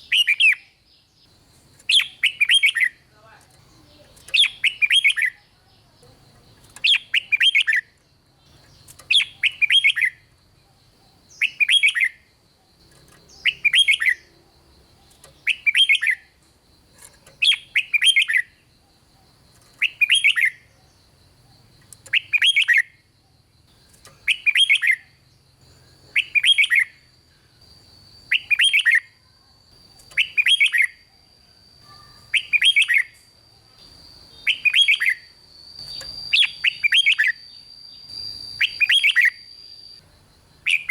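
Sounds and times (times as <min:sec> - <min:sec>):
bird singing warbled phrase: 0:01.8 - 0:10.3, 0:11.1 - 0:12.2, 0:12.9 - 0:16.3, 0:24.0 - 0:27.0, 0:31.8 - 0:33.2, 0:34.4 - 0:39.4, 0:40.5 - 0:40.9
faint high whine: 0:29.7 - 0:40.9.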